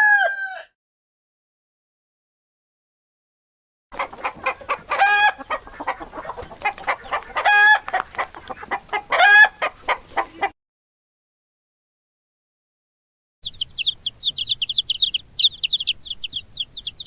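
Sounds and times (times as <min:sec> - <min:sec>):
chickens clucking: 0:03.9 - 0:10.6, 0:13.4 - 0:17.0.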